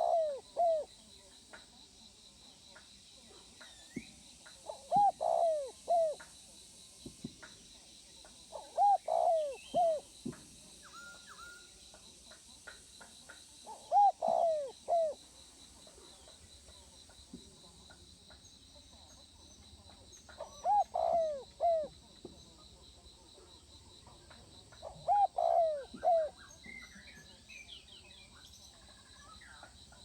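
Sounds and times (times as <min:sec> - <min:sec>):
dove cooing: 0:00.0 - 0:00.9, 0:04.6 - 0:06.2, 0:08.5 - 0:10.1, 0:13.7 - 0:15.2, 0:20.4 - 0:22.0, 0:24.8 - 0:26.6.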